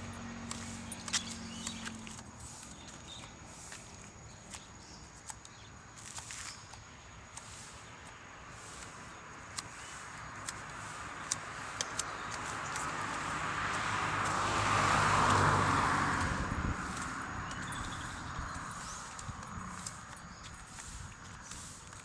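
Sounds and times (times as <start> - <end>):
vehicle engine passing by: 0.0 - 4.4, 9.8 - 21.8.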